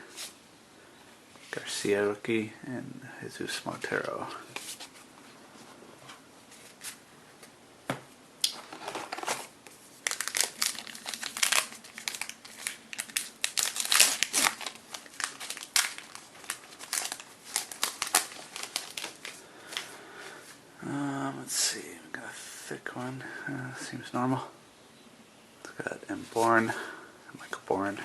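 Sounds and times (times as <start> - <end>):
foil wrapper crinkling and tearing: 8.5 - 19.4.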